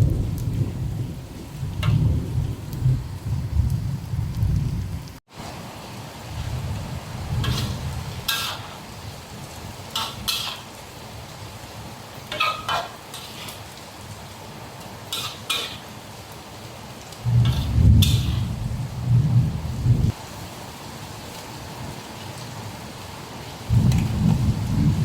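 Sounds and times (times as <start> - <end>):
anchovies frying in oil: 0.0 - 25.0
heavy rain and thunder rumble: 0.0 - 25.0
spatula scraping and clinking pan: 7.4 - 8.8, 9.9 - 10.7, 12.3 - 13.7, 15.1 - 15.9, 17.4 - 18.5.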